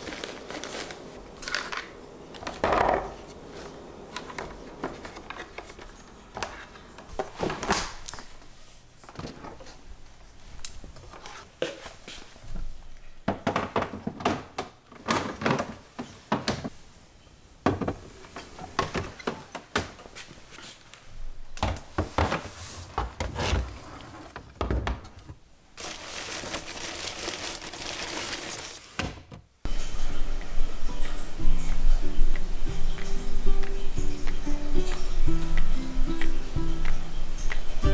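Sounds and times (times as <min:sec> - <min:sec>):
plastic packaging crinkling: 0:00.0 - 0:02.0, 0:25.8 - 0:28.9
steady hiss: 0:29.7 - 0:37.9.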